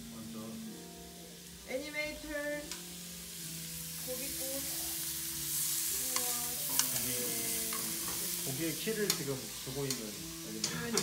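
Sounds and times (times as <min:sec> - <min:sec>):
pork sizzling on a grill: 0:00.0 - 0:11.0
metal tongs clicking: 0:06.1 - 0:07.1.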